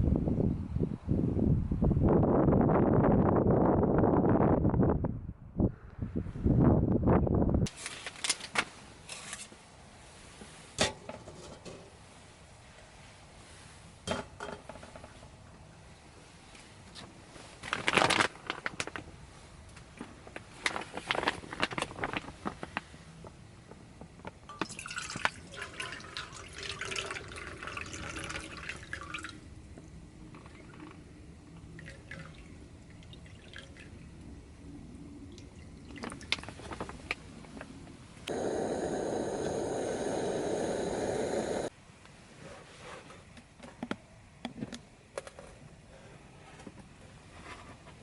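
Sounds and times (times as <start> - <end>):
liquid pouring: 24.6 - 29.3.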